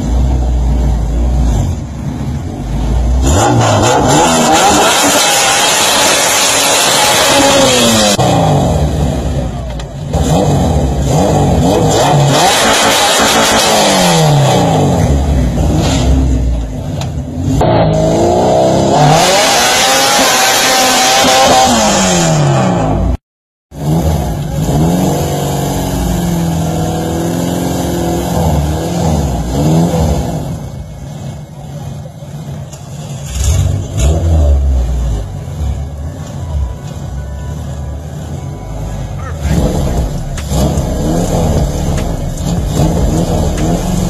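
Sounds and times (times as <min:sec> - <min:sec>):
car engine revving hard: 0:03.2 - 0:09.5, 0:10.1 - 0:16.6, 0:17.4 - 0:23.2, 0:23.8 - 0:30.7, 0:39.2 - 0:44.0.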